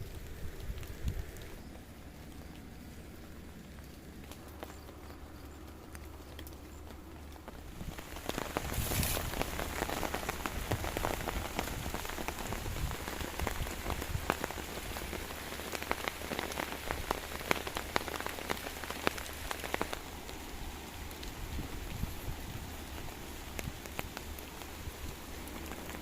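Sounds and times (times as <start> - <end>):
heavy rain falling: 0.0 - 26.0
raindrops striking a surface: 0.0 - 26.0
brief hiss: 8.7 - 9.4.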